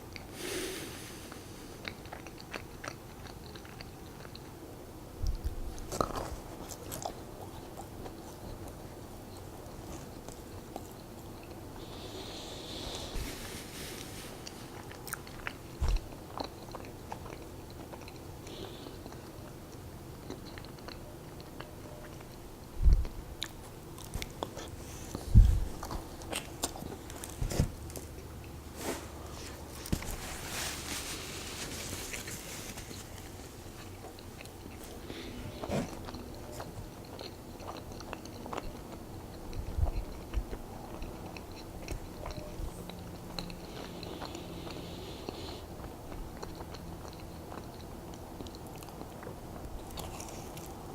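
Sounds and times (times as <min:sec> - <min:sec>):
chewing and biting donuts: 0:01.2 - 0:13.2, 0:14.0 - 0:28.7, 0:31.2 - 0:50.9
short rustling: 0:28.7 - 0:33.7.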